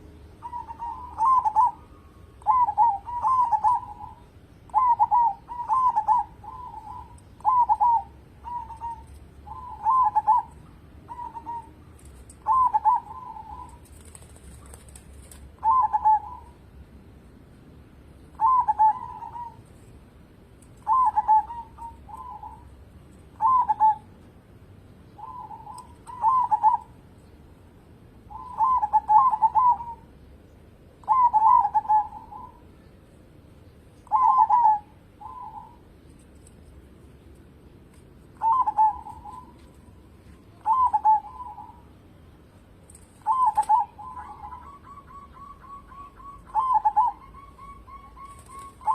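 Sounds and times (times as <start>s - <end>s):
dove cooing: 0.0s - 16.7s, 18.3s - 19.8s, 20.6s - 24.2s, 25.1s - 27.1s, 28.3s - 30.2s, 31.0s - 32.7s, 34.0s - 35.9s, 38.3s - 42.1s, 42.9s - 48.9s.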